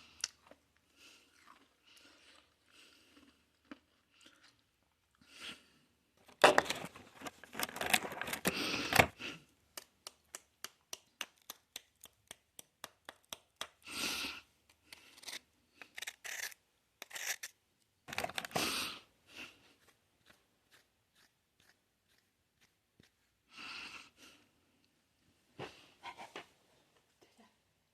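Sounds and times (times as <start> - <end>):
packaging crinkling: 6.4 - 9.1, 18.1 - 18.8.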